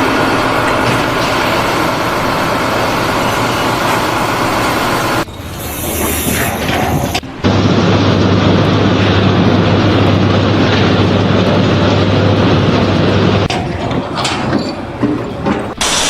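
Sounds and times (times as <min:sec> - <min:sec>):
mechanical rumble with low hum: 0:06.6 - 0:13.5.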